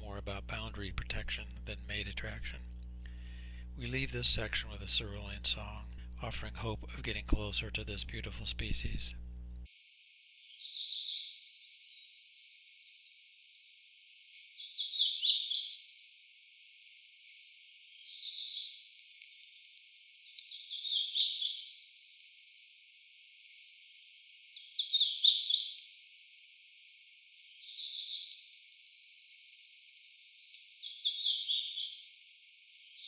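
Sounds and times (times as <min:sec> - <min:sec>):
warbler singing buzzy song: 0:00.0 - 0:09.7.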